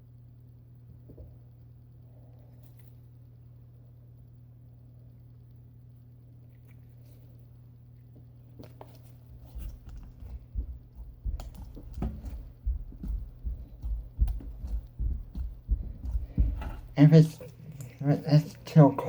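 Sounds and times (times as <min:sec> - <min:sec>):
steady low hum: 0:00.0 - 0:19.0
noise putty squelching: 0:08.6 - 0:19.0.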